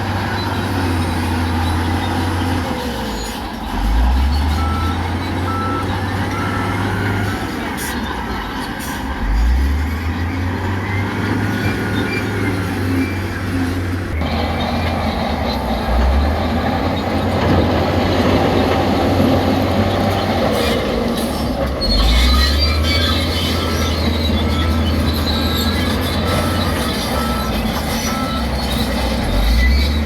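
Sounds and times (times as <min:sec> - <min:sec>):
construction machinery engines droning: 0:00.0 - 0:30.0
high metallic squealing: 0:20.1 - 0:30.0.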